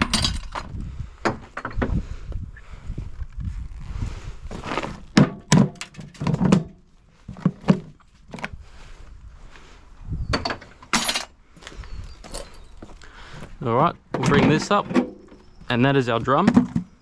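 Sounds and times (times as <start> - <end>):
knocks and thunks of machine parts: 0.0 - 2.0, 5.1 - 8.0, 10.3 - 11.2, 14.1 - 15.4, 16.4 - 17.0.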